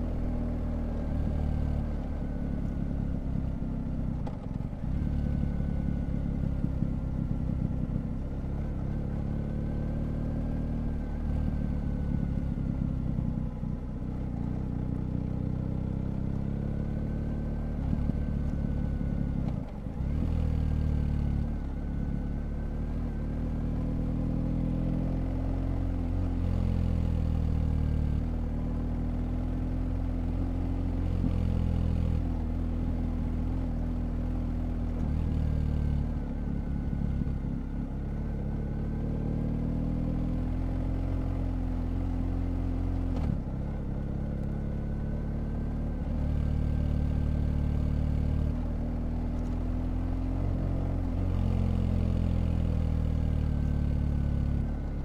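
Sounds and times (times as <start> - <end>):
motorcycle engine revving: 15.5 - 55.0.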